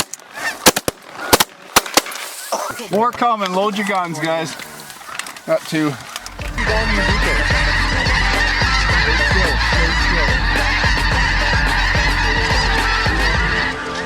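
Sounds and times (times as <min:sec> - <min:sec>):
flock of geese honking: 0:03.0 - 0:14.0.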